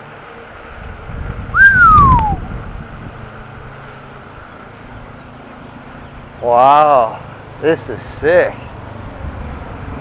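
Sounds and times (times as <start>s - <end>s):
wind buffeting microphone: 0.7s - 3.4s
falling whistle-like tone: 1.5s - 2.5s.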